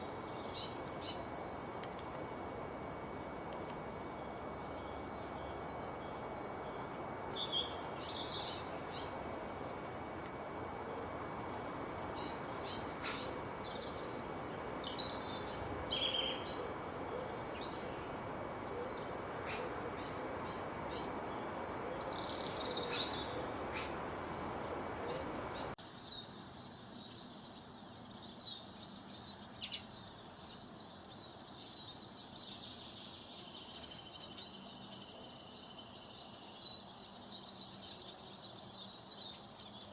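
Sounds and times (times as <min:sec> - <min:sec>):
birds chirping: 0:00.0 - 0:39.9
faint high twittering: 0:00.0 - 0:39.9
steady background hiss: 0:00.0 - 0:39.9.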